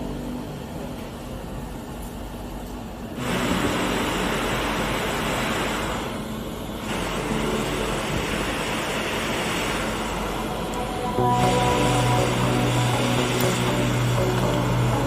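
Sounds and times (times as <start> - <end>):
steady rushing air: 3.2 - 15.0.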